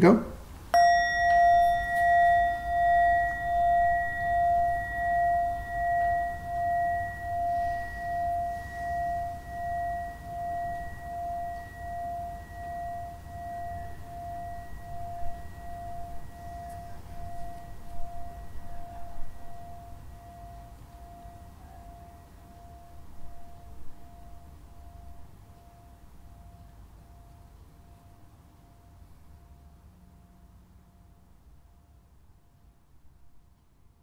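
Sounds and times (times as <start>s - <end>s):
meditation bell ringing: 0.7s - 31.3s.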